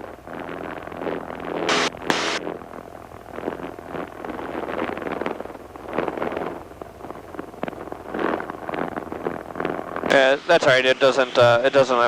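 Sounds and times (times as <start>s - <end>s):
loud hiss: 1.7s - 2.4s.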